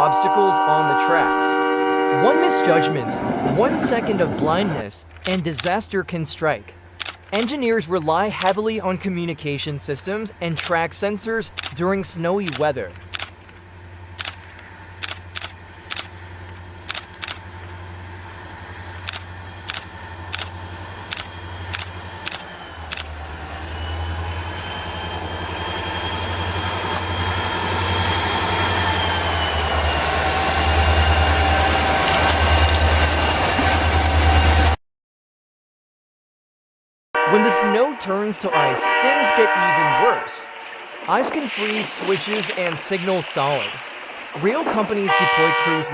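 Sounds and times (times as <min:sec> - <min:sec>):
high whine: 0:00.0 - 0:34.8
train rumbling: 0:00.0 - 0:34.8, 0:37.2 - 0:45.9
sharp clicks: 0:05.0 - 0:05.8, 0:07.0 - 0:07.7, 0:08.4 - 0:08.7, 0:10.5 - 0:10.8, 0:11.5 - 0:11.8, 0:12.4 - 0:17.8, 0:19.0 - 0:20.5, 0:21.1 - 0:23.1.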